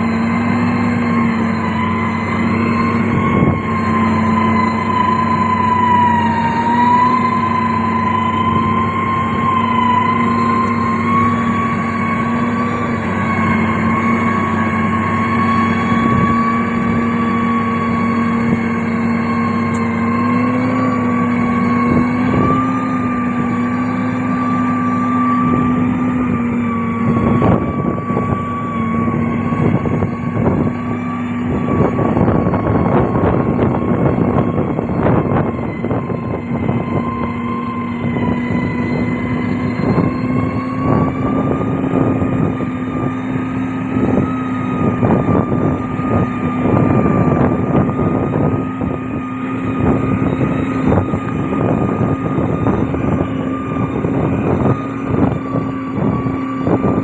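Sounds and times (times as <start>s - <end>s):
heavy machine engine under load: 0.0s - 57.0s
steady whine: 0.0s - 57.0s.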